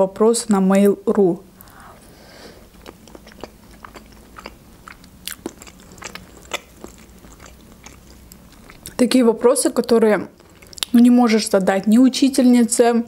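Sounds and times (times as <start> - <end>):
person chewing: 1.6 - 9.0, 10.3 - 11.0.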